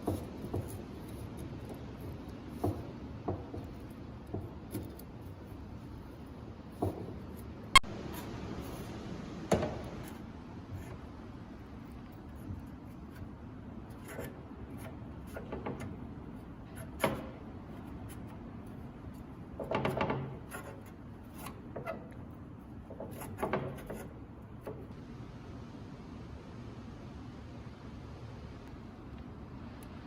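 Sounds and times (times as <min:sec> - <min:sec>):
light taps and scrapes on workbench: 0:00.0 - 0:05.6, 0:11.9 - 0:22.2, 0:22.8 - 0:25.0
rubbing: 0:09.8 - 0:24.9.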